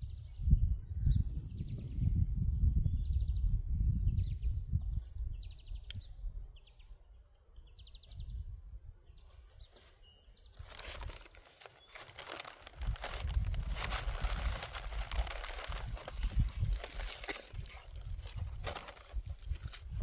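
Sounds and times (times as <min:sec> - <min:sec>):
close crinkling and rustling: 0:10.6 - 0:20.0.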